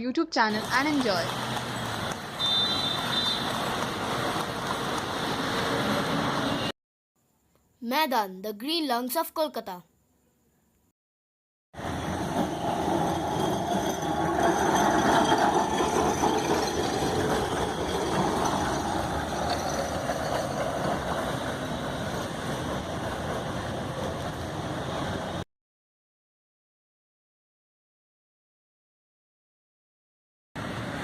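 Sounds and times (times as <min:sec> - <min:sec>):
tram rumbling on tracks: 0:00.5 - 0:06.7, 0:11.8 - 0:25.4.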